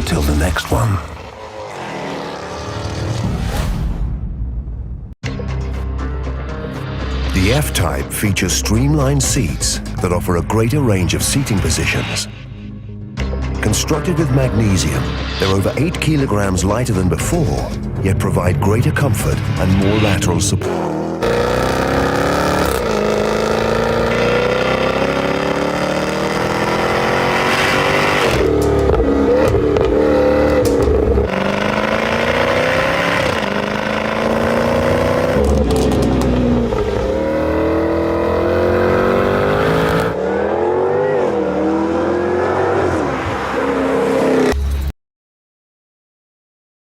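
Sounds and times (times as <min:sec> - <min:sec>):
sports car engine accelerating: 0:18.8 - 0:44.7.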